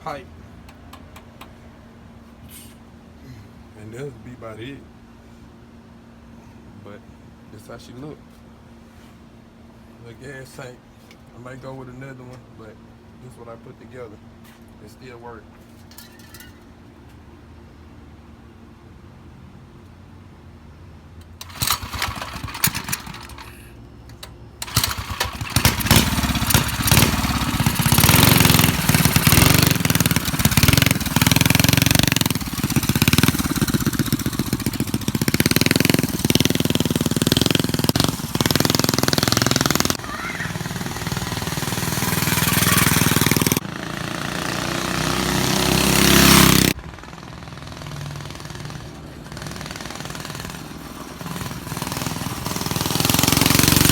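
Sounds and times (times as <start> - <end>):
small engine sputtering and revving: 21.4 - 23.7, 24.6 - 53.9.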